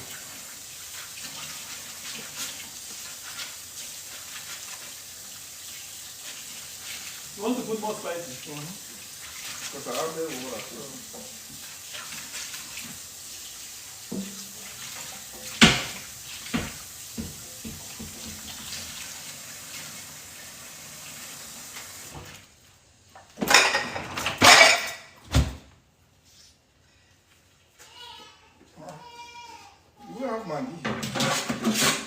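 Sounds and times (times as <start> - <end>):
pots and pans clattering: 14.0 - 18.9, 23.2 - 25.2, 30.8 - 32.0
tap running into sink: 14.0 - 19.1
dishes knocking: 23.4 - 25.0.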